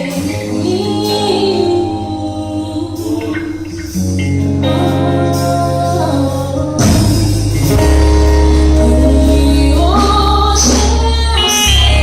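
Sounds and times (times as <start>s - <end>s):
worship band playing: 0.0s - 12.0s
deep bass note: 0.6s - 12.0s.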